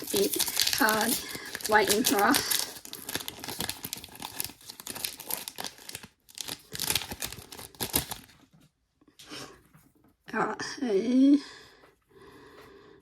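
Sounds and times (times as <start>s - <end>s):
wrapper crinkling and tearing: 0.0s - 8.5s.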